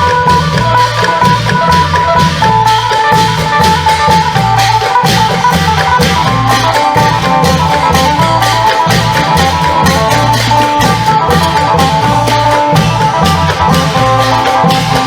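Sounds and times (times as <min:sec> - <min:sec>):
long drums rhythm: 0:00.0 - 0:15.0
lute playing a repeating melody: 0:00.0 - 0:15.0
sharp percussion strokes: 0:00.0 - 0:15.0.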